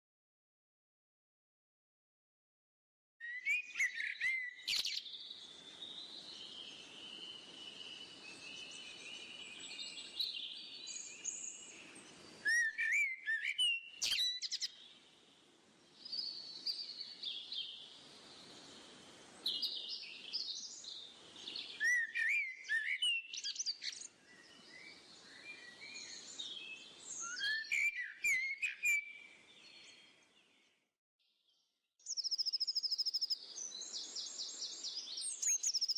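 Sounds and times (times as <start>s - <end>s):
small birds singing: 3.2s - 35.9s
sliding whistled bird phrases: 12.5s - 14.7s, 27.2s - 29.0s.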